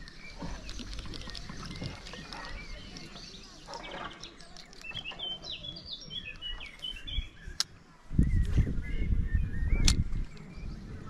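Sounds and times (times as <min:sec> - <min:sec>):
songbirds chirping and warbling: 0:00.0 - 0:11.0
sharp click: 0:09.8 - 0:10.5.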